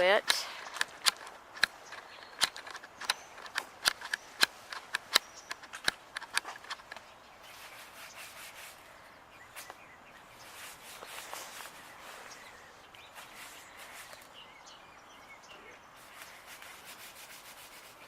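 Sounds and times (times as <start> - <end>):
sharp clicks and taps: 0.2 - 7.1.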